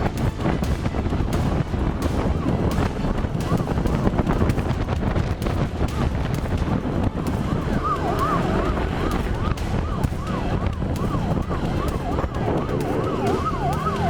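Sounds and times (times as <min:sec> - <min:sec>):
heavy rumble: 0:00.0 - 0:14.0
wind noise: 0:00.0 - 0:14.0
police siren yelping: 0:07.1 - 0:14.0.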